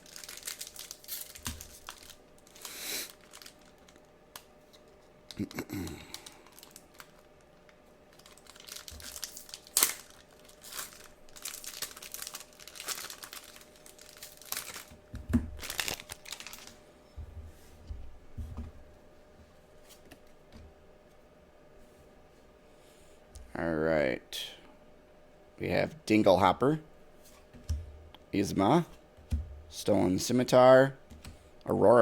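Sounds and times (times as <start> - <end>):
wrapper sharp rip: 0.0 - 3.5, 8.5 - 11.0
wrapper crinkling: 0.0 - 16.8.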